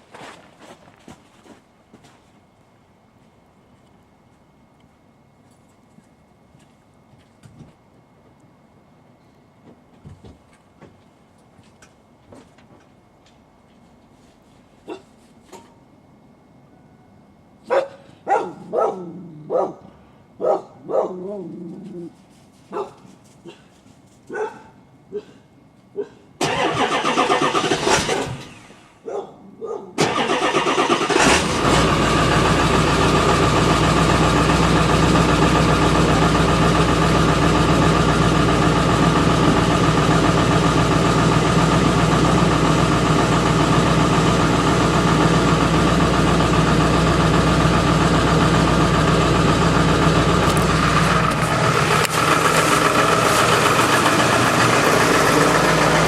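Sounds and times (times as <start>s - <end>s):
engine cranking: 26.4s - 28.7s, 30.0s - 32.8s, 50.2s - 56.0s
diesel engine idling: 30.0s - 56.0s.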